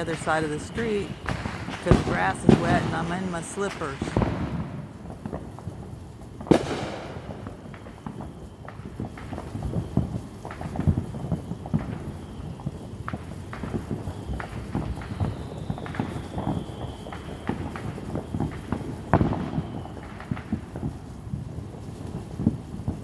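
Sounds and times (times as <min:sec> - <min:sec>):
distant fireworks popping: 0:00.0 - 0:23.0
sharp firework bang: 0:06.4 - 0:08.3.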